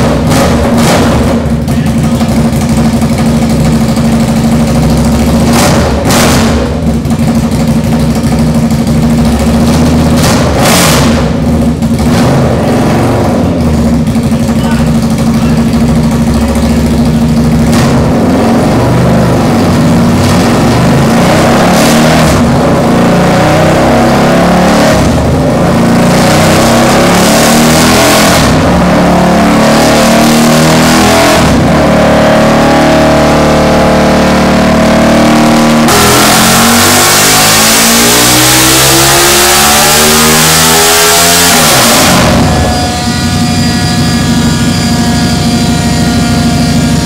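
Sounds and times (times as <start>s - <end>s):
motorcycle engine revving loudly: 0.0s - 47.0s.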